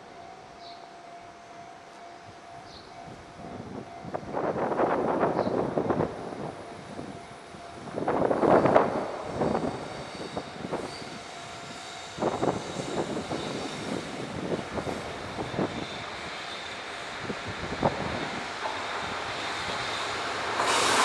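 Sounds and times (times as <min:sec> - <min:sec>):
train wheels clacking over rail joints: 0:18.3 - 0:21.0.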